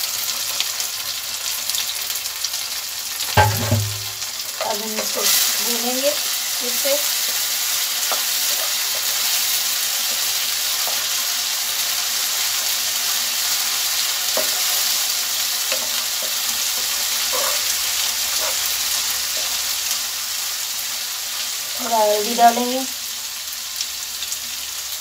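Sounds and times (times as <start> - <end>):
food sizzling in hot oil: 0.0 - 25.0
spatula scraping a pan: 7.2 - 11.2, 15.6 - 19.6.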